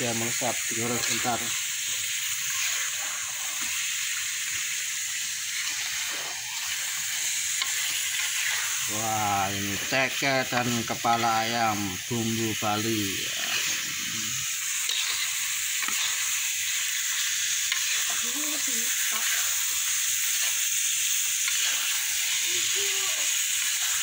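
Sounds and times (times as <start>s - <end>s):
food sizzling in a wok: 0.0s - 24.0s
spatula scraping pan: 0.8s - 4.2s, 5.5s - 8.9s, 13.2s - 16.5s, 17.2s - 20.6s.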